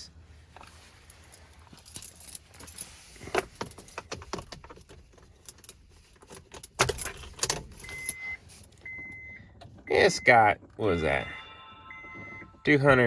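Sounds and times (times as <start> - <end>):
car keys jangling: 1.1 - 9.8
car warning chime beeping: 7.7 - 13.0.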